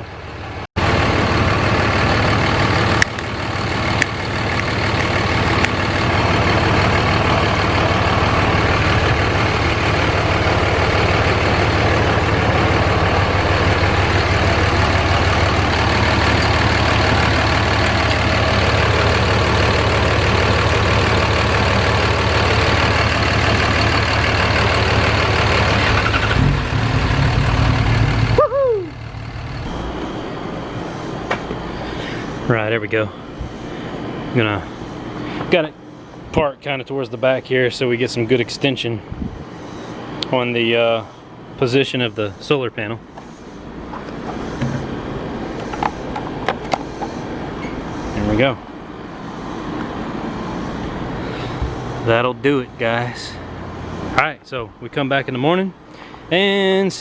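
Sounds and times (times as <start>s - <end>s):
engine winding down whine: 0.0s - 35.2s
diesel truck engine idling: 0.0s - 57.0s.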